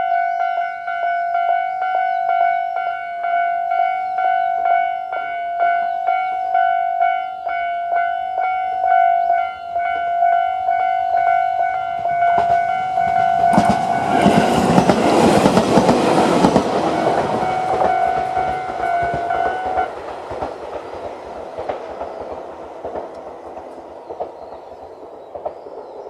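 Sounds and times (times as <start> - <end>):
level crossing warning bell: 0.0 - 23.4
train wheels clacking: 9.0 - 26.0.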